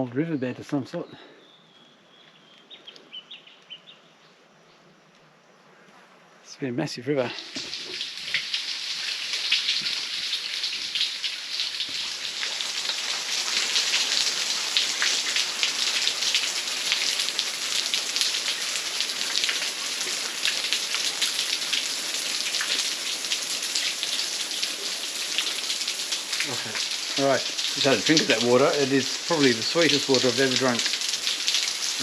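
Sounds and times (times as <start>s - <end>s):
waterfall splashing onto rock: 7.4s - 32.0s.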